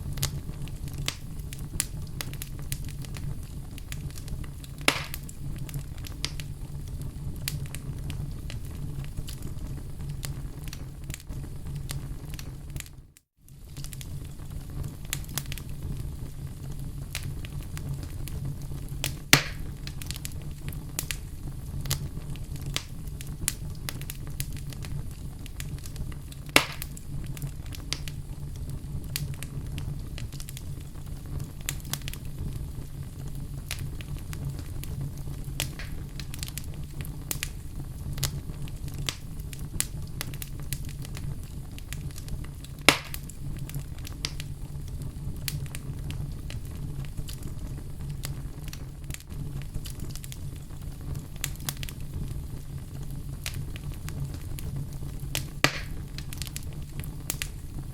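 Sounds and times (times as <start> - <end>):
fire crackling in fireplace: 0.0 - 57.9
loud fire pops: 0.0 - 57.9.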